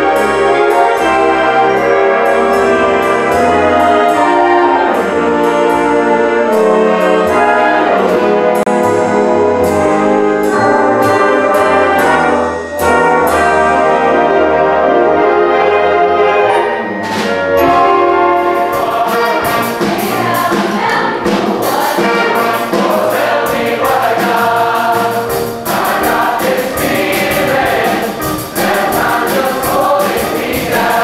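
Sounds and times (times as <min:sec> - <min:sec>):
concert band playing: 0:00.0 - 0:31.0
sharp percussion hits: 0:16.5 - 0:31.0.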